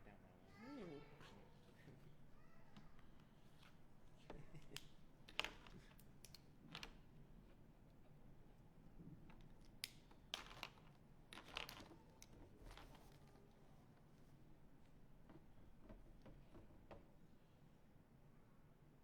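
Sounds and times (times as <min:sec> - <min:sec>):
art supplies clicking and crinkling: 0:04.8 - 0:07.0, 0:09.3 - 0:13.3.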